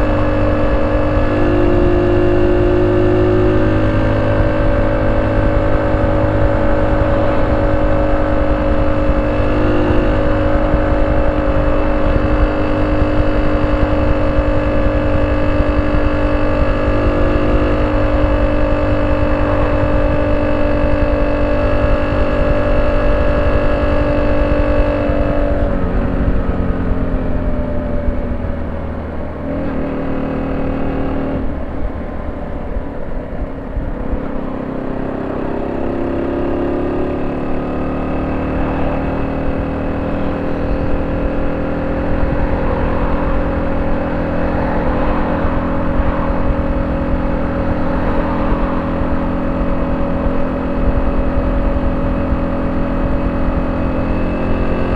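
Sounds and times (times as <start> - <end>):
small motorcycle engine running: 0.0 - 54.9.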